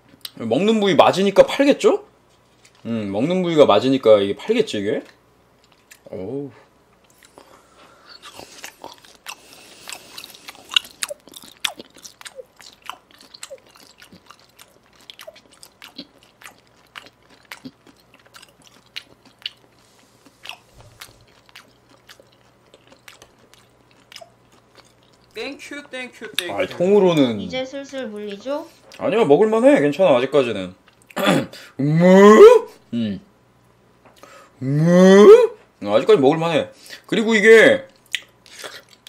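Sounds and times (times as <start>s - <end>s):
person chewing with wet mouth clicks: 8.1s - 25.4s, 38.0s - 39.0s.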